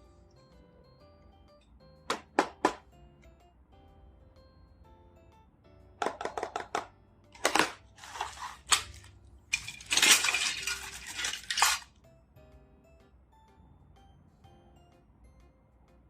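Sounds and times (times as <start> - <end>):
soft background music: 0.0 - 16.0
plastic toy pieces clattering: 7.4 - 11.9.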